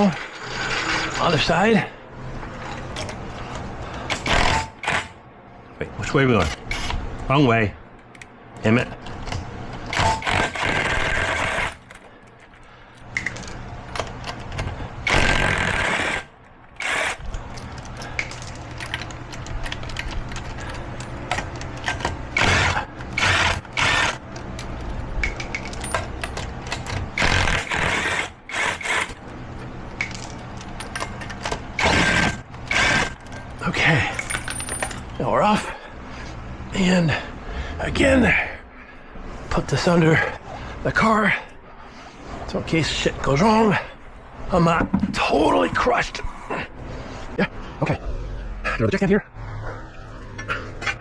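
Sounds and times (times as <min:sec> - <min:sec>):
metal clanking and scraping: 0:00.0 - 0:05.0
steady low hum: 0:00.0 - 0:51.0.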